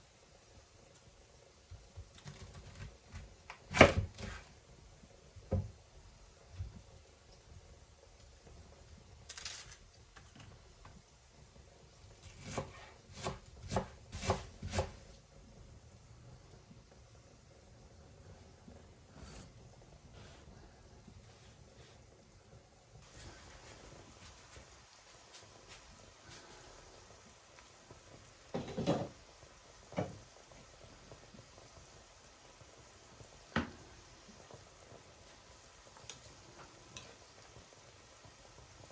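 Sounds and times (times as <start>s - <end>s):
faint steady hiss: 0.0s - 38.9s
knife chopping on cutting board: 3.7s - 4.4s, 12.3s - 15.0s
knife scraping cutting board: 12.2s - 15.0s, 19.1s - 19.6s
kitchen items clattering: 28.5s - 29.2s.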